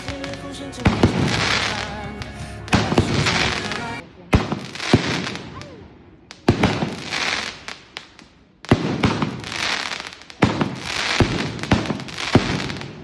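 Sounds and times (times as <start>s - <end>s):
fireworks bangs: 0.0s - 13.0s
fireworks crackling hiss: 0.0s - 13.0s.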